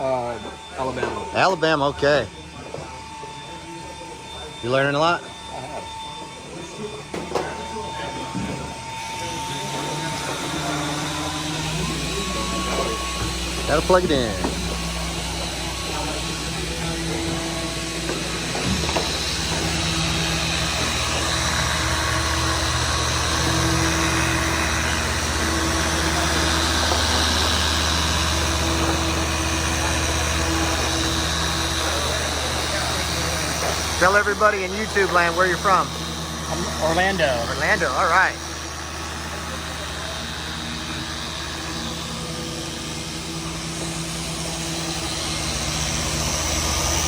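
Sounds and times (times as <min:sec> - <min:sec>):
machine sanders humming: 0:00.0 - 0:47.0.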